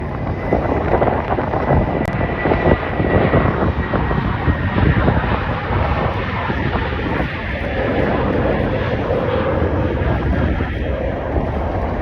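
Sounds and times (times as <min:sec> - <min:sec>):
jet engines at takeoff power: 0:00.0 - 0:12.0.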